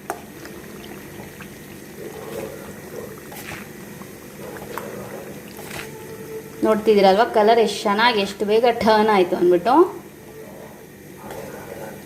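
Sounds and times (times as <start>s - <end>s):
oil simmering and bubbling in a pan: 0.0s - 6.9s.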